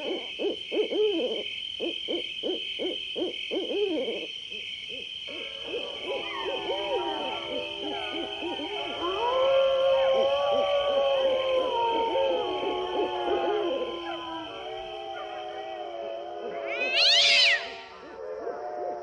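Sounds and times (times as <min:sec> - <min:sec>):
short hooting calls: 0:16.7 - 0:18.1.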